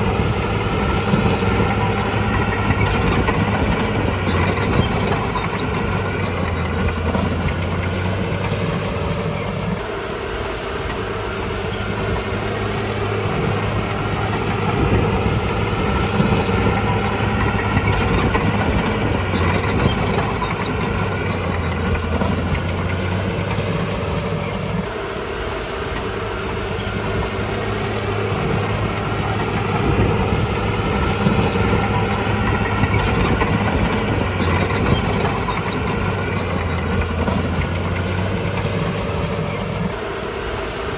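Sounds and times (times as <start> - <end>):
bulldozer diesel engine running: 0.0 - 40.9
sharp metallic clicks: 27.5 - 39.8.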